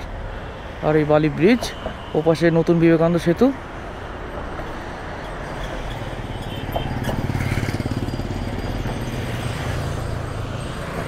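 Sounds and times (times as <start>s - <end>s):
road traffic noise: 0.0s - 11.0s
vehicle engine rumbling: 3.5s - 11.0s.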